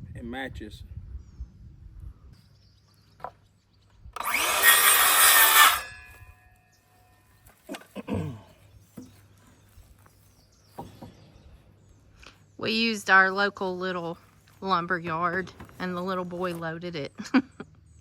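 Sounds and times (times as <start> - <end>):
power saw cutting wood: 4.2 - 6.1.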